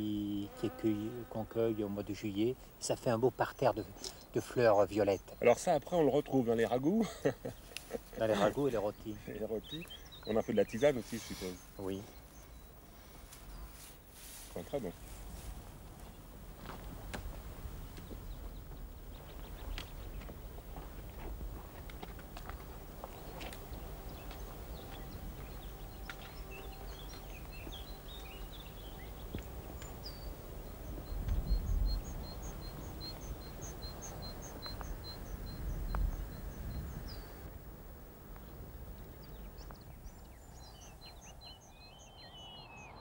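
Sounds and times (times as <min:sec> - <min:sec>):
footsteps on rocky ground: 0:15.2 - 0:30.3.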